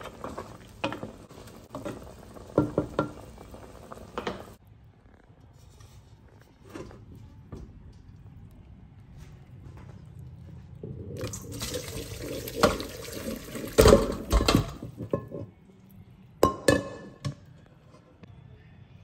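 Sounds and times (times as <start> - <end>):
water splashing into colander: 11.2 - 15.0.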